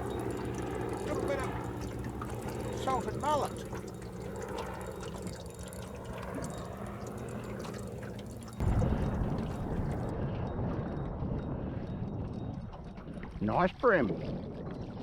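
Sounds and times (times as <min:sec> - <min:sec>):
steady low hum: 0:00.0 - 0:10.1
water trickling and dripping: 0:00.0 - 0:10.1
loud low rumble: 0:08.6 - 0:10.2.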